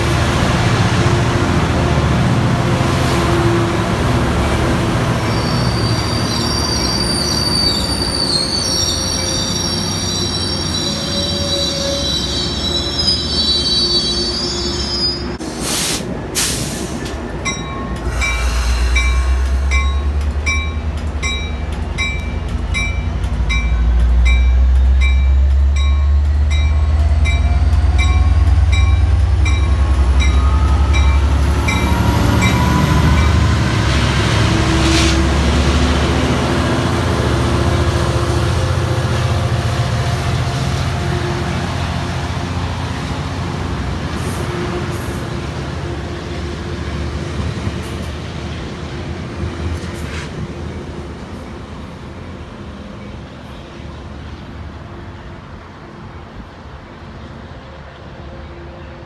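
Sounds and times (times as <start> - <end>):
diesel locomotive engine rumble: 0.0 - 59.0
train wheels squealing: 4.9 - 15.4, 16.7 - 20.1.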